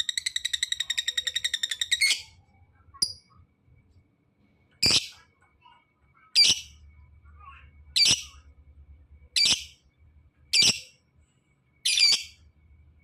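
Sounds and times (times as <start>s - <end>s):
lovebird harsh high-pitched calls: 0.0s - 2.4s, 4.8s - 5.2s, 6.4s - 6.8s, 8.0s - 8.4s, 9.4s - 9.8s, 10.5s - 10.9s, 11.9s - 12.4s.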